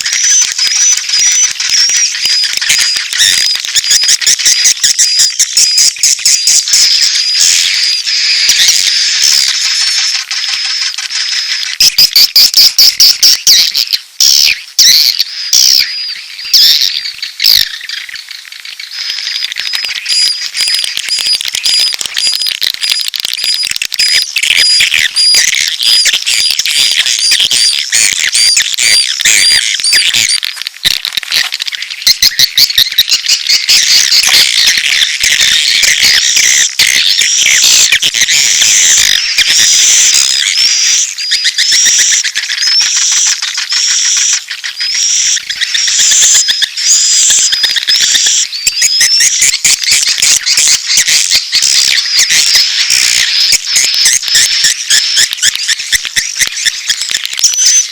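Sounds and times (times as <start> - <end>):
chick calls: 0.0 - 57.9
swiftlets chirping and twittering: 0.0 - 57.9
sharp clicks: 19.1 - 57.9.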